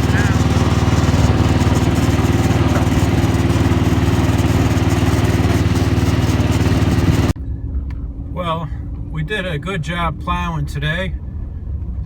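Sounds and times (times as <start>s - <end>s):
tractor engine running: 0.0s - 9.4s.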